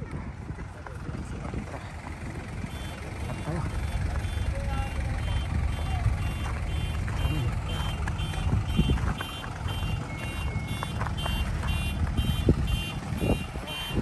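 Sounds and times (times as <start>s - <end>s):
low engine hum: 0.0s - 14.0s
reversing alarm beeping: 9.7s - 11.0s.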